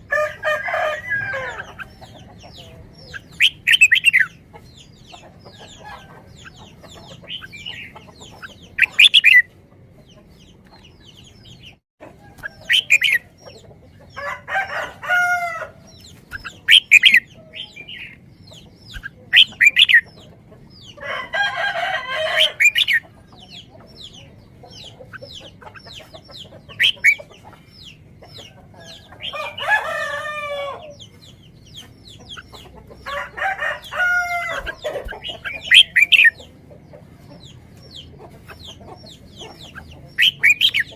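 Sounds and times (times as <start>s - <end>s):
long bird calls: 10.5s - 40.9s.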